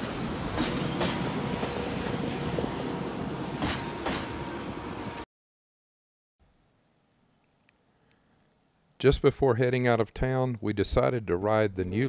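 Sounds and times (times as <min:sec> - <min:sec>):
train wheels clacking over rail joints: 0:00.0 - 0:02.1, 0:03.6 - 0:04.4
steady train rumble: 0:00.0 - 0:05.2.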